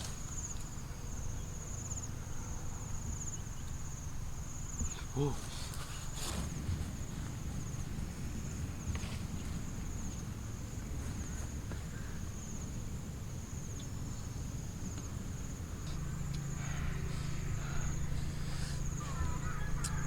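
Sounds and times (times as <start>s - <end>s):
low rumble: 6.4s - 19.9s
insect trilling: 13.5s - 20.0s.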